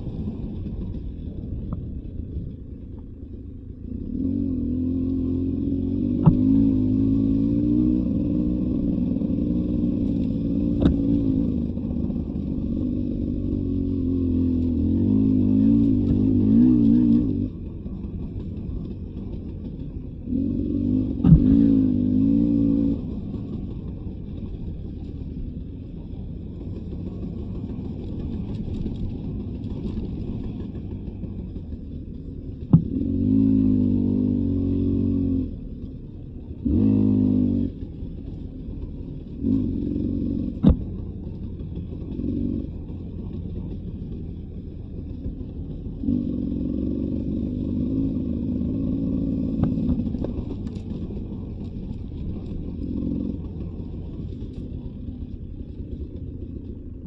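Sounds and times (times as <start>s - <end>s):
dirt bike engine revving: 4.0s - 17.6s, 19.8s - 23.5s, 32.7s - 35.6s, 36.5s - 37.9s, 39.4s - 41.1s, 45.7s - 51.4s.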